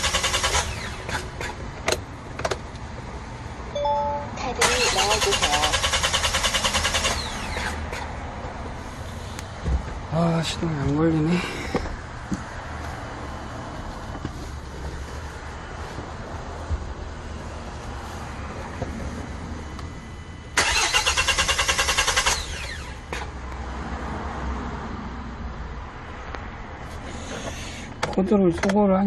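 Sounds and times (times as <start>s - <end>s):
diesel engine cranking: 0.0s - 3.0s, 4.5s - 9.4s, 20.4s - 23.4s
steady low hum: 0.6s - 20.6s.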